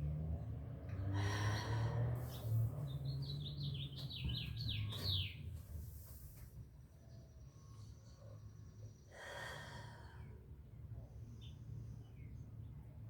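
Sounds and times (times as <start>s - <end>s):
songbird singing: 2.2s - 5.8s.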